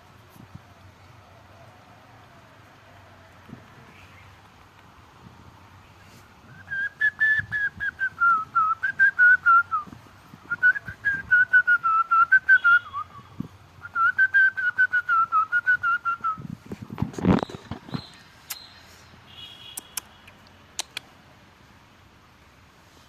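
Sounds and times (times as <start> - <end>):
whistled notes: 6.5 - 9.9, 10.5 - 16.4.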